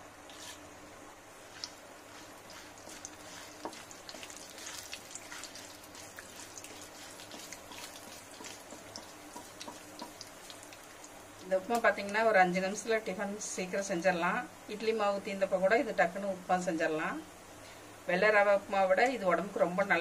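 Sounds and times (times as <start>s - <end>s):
seeds frying in oil: 1.2s - 13.8s
sharp pops and crackles: 6.5s - 11.8s.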